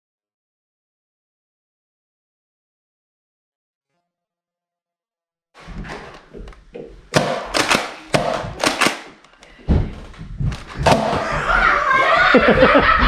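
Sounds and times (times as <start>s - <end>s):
hollow thunks of toy blasters firing: 7.2s - 9.1s.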